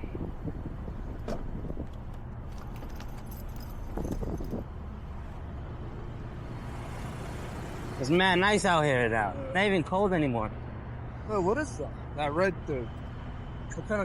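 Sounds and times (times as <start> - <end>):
vehicles idling: 0.0 - 14.0
clinks and rustles: 1.2 - 4.7.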